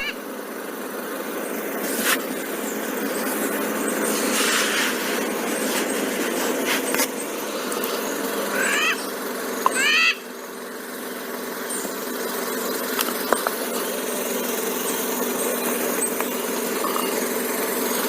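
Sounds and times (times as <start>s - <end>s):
parrot squawk: 8.5s - 9.1s, 9.7s - 10.2s.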